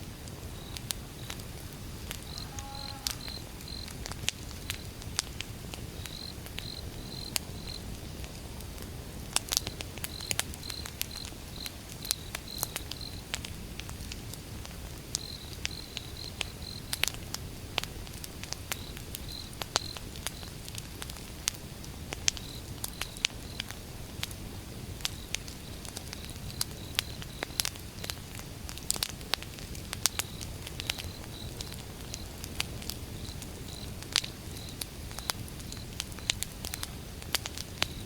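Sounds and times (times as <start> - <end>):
campfire crackling and popping: 0.0 - 38.0
crickets chirping: 0.6 - 5.0, 5.8 - 8.2, 9.6 - 13.3, 15.2 - 17.0, 18.8 - 20.6, 25.1 - 28.1, 30.1 - 37.1.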